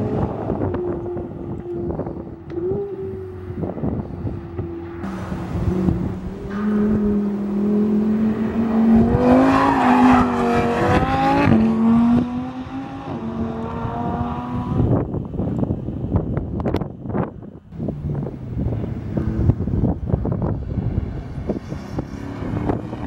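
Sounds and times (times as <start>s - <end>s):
sports car engine driving past: 0.0s - 15.0s.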